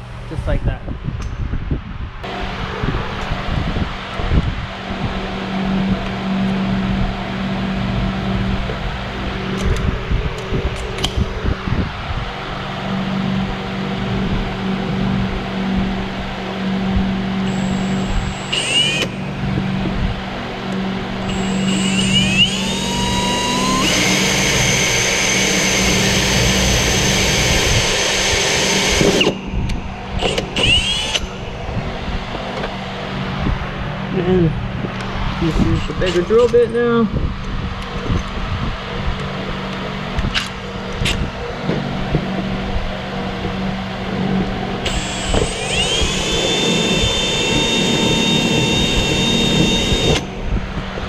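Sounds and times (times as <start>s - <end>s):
power drill drilling plastic: 17.5s - 19.2s, 21.2s - 29.4s, 30.2s - 31.3s, 44.9s - 50.3s.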